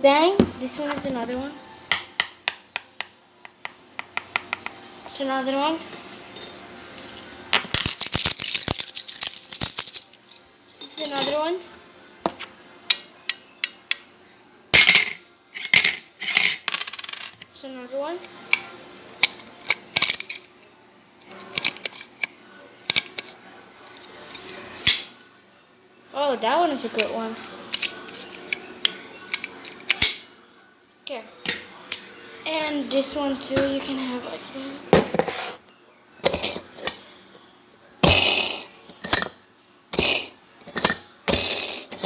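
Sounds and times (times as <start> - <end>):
small hard objects clinking: 6.4 - 11.4.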